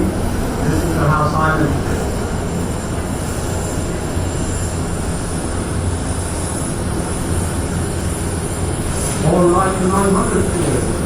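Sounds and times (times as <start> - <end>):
jet airliner rumble: 0.0 - 11.0.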